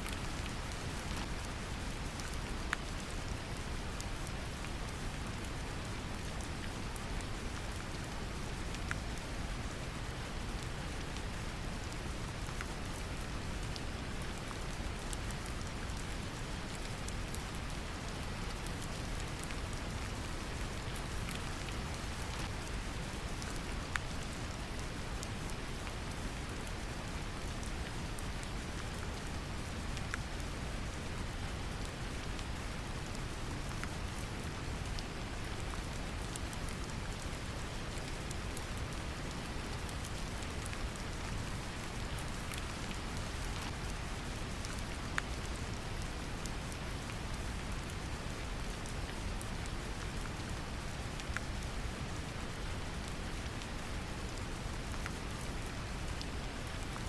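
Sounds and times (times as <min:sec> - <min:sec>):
rain pattering: 0:00.0 - 0:57.0
raindrop ticks: 0:10.5 - 0:45.5.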